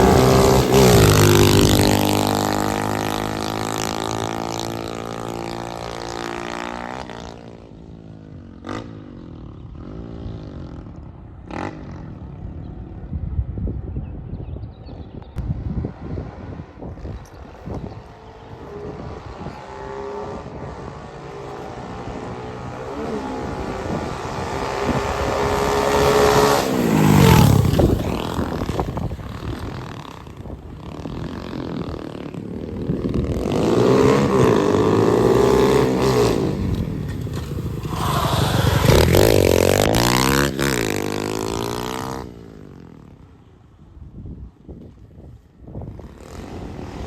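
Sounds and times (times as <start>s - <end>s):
pit bike engine revving: 0.0s - 7.6s, 18.6s - 42.9s.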